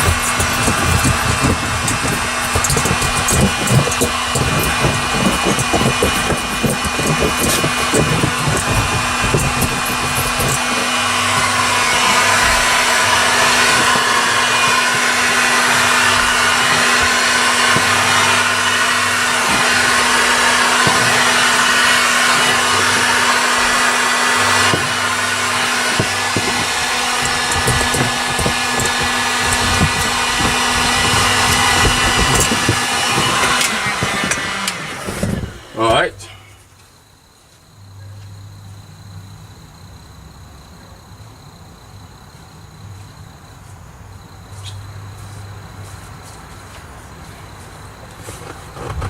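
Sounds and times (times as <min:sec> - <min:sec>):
heat gun blowing air: 0:00.0 - 0:36.1.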